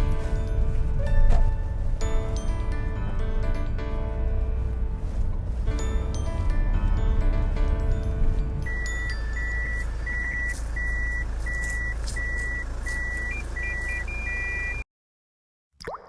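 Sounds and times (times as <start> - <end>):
van engine running: 0.0 - 14.8
reversing warning beeper: 8.7 - 14.8.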